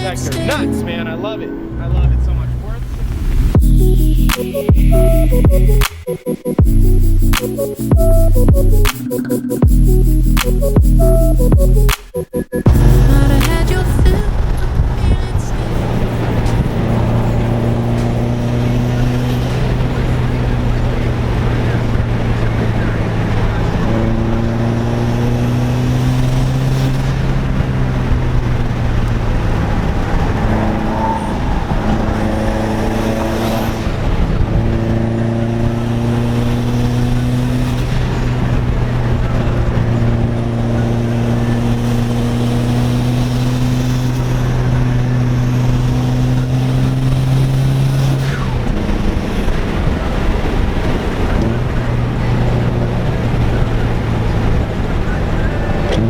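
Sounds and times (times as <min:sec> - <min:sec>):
car engine droning: 0:00.0 - 0:56.0.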